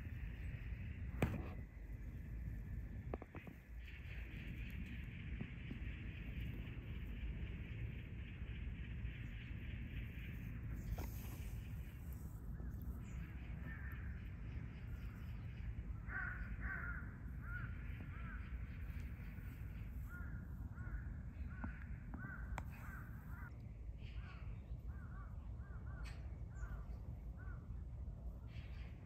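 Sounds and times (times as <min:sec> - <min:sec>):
low background rumble: 0:00.0 - 0:29.0
birds calling: 0:10.2 - 0:27.6.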